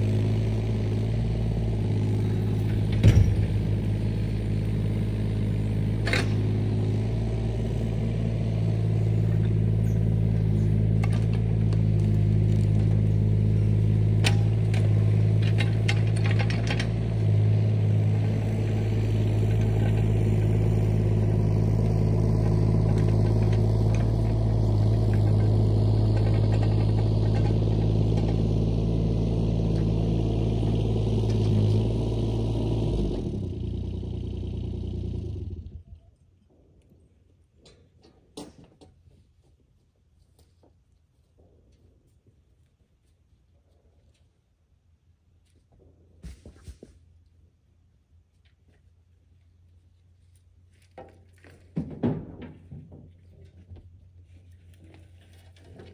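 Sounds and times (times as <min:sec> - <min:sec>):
heavy machinery engine running: 0:00.0 - 0:36.0
clanks and rattles: 0:01.9 - 0:03.8, 0:14.1 - 0:17.4, 0:22.4 - 0:28.5, 0:50.9 - 0:55.9.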